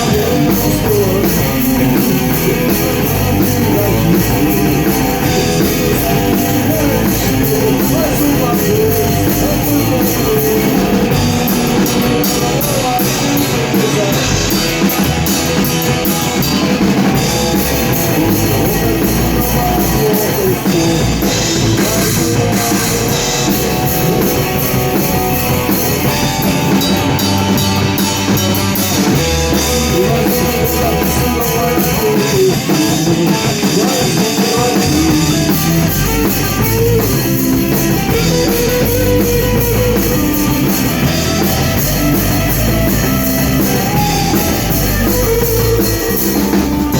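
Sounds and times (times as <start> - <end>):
rock band playing live: 0.0 - 46.9.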